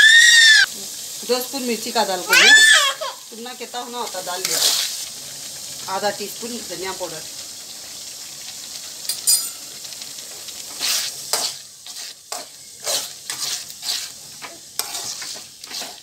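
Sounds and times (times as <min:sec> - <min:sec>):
sauce sizzling in oil: 0:00.0 - 0:16.0
sharp metal clink: 0:09.1 - 0:09.6
metal spoon scraping pot: 0:10.8 - 0:14.2, 0:14.8 - 0:16.0.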